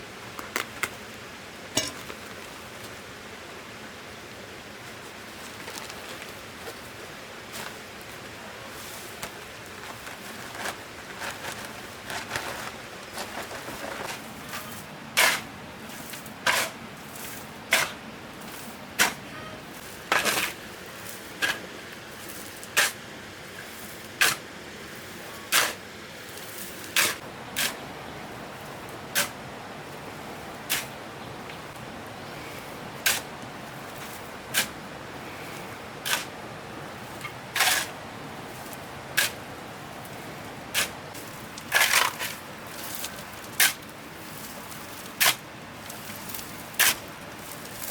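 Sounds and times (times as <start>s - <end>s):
rustling: 5.0s - 14.9s.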